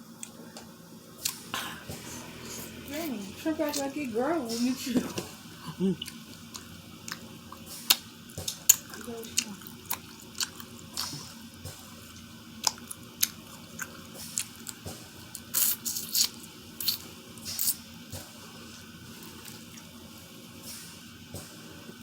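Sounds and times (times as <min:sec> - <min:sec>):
person chewing with wet smacks: 0:01.2 - 0:02.4, 0:06.0 - 0:18.3.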